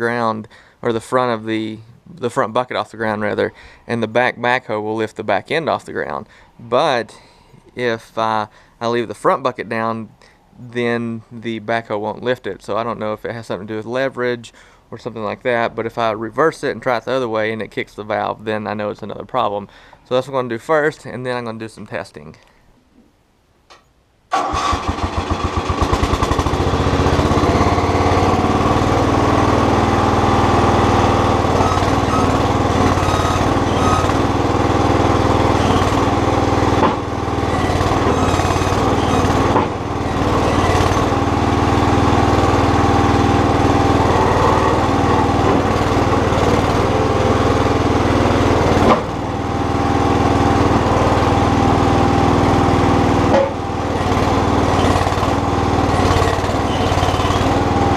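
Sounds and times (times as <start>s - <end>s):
small backhoe engine running: 24.4s - 57.9s.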